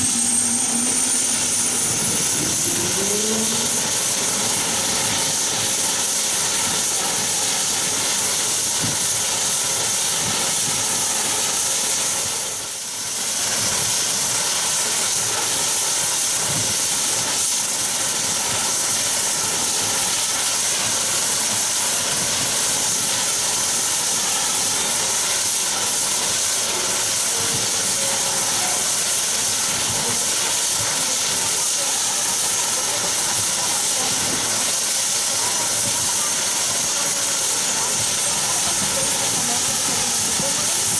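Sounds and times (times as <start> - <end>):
turboprop engines whining: 0.0 - 11.2.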